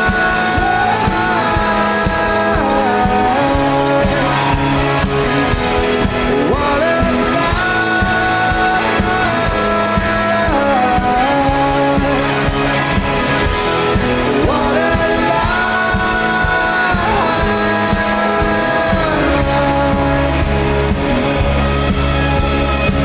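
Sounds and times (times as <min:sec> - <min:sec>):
drums: 0:00.0 - 0:23.0
heavy bass: 0:00.0 - 0:23.0
rock band playing live: 0:00.0 - 0:23.0
sliding held guitar notes: 0:00.0 - 0:23.0.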